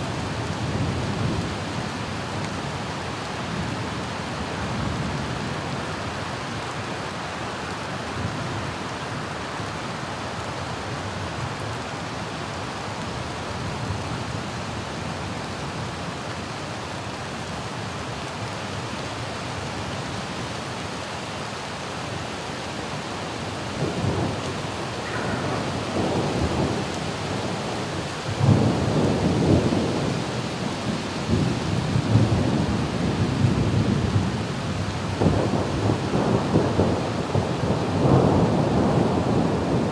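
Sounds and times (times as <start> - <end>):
rain falling: 0.0 - 39.9
thunder rumbling: 23.7 - 39.9.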